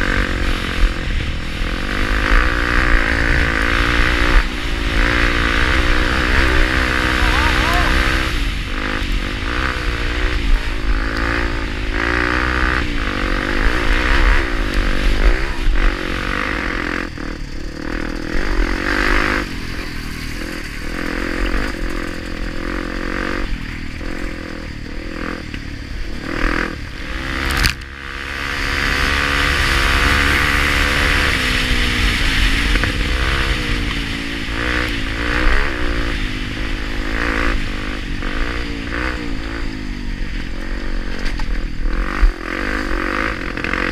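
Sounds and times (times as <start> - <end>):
motorcycle engine revving: 0.0 - 43.9
motorcycle clattering over rough ground: 17.4 - 26.7, 40.5 - 43.9.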